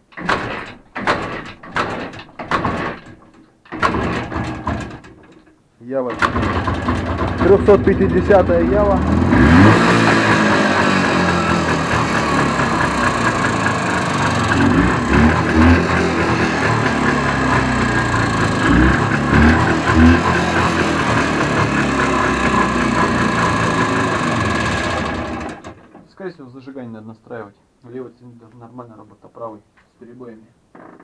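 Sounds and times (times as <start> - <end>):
two-stroke motorcycle engine running: 6.2 - 25.8.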